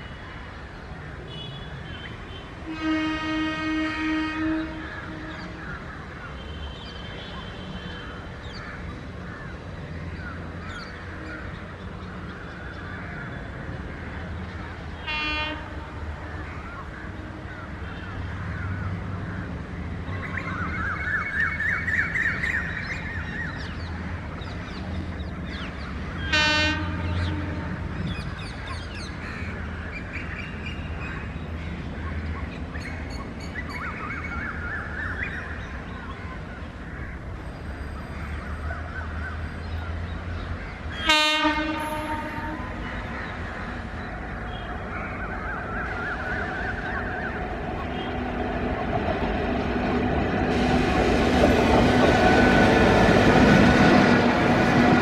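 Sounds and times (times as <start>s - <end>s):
train horn toots: 2.4s - 5.6s, 15.0s - 16.2s, 26.3s - 28.1s, 41.0s - 42.8s
freight train rumbling past: 2.5s - 6.2s, 9.0s - 55.0s.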